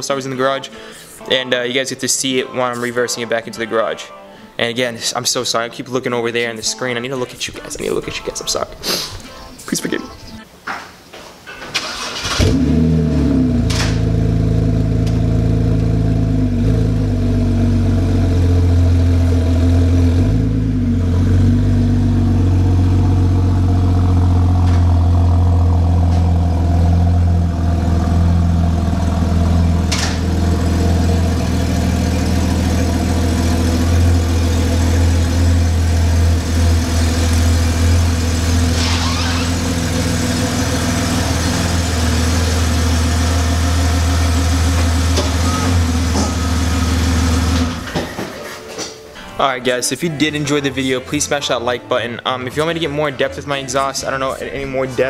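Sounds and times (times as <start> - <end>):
car engine starting and idling: 11.6 - 48.2.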